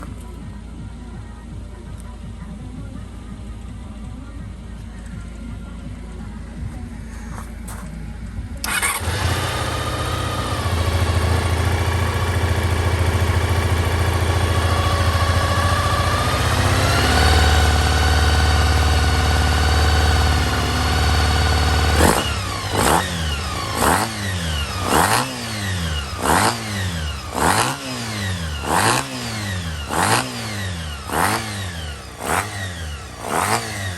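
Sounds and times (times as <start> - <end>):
motorcycle engine revving: 7.3 - 33.9.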